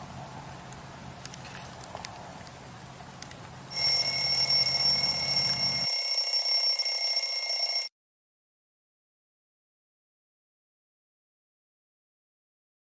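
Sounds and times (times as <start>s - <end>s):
campfire crackling: 0.2s - 4.4s
timer alarm ringing: 3.7s - 7.9s.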